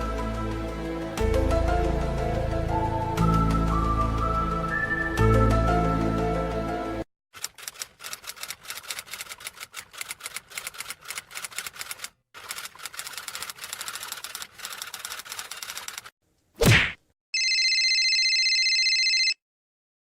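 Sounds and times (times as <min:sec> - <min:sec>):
fast typing key clicks: 0:07.4 - 0:16.1.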